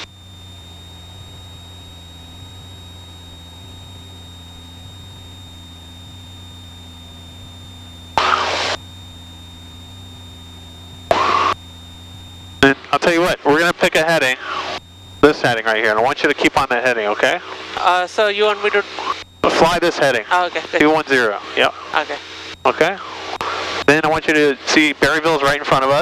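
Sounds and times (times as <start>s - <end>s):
propeller plane engine droning: 0.0s - 26.0s
bursts of hiss: 8.2s - 8.8s.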